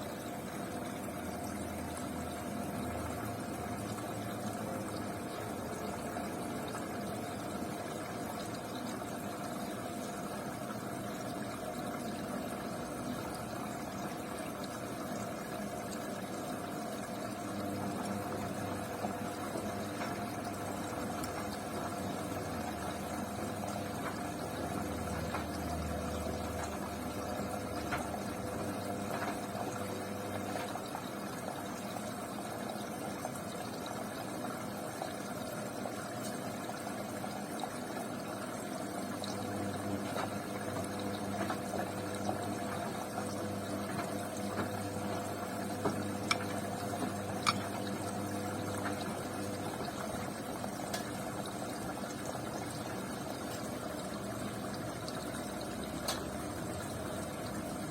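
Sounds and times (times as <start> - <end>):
washing machine motor hum: 0.0 - 57.9
water sloshing in washing machine: 0.0 - 57.9.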